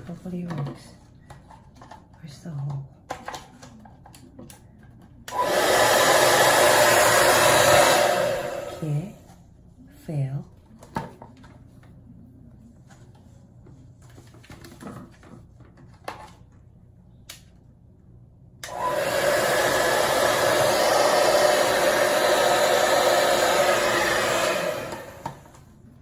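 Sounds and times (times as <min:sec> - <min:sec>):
hair dryer blowing: 0:05.3 - 0:09.2, 0:18.6 - 0:25.6.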